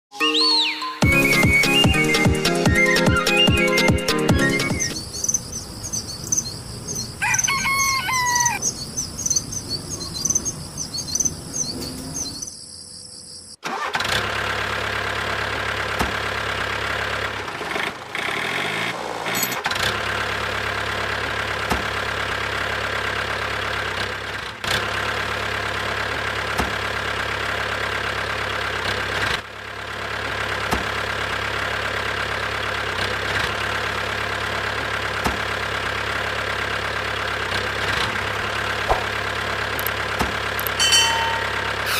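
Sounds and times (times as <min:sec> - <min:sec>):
birds chirping: 0:02.8 - 0:13.6, 0:40.6 - 0:41.9.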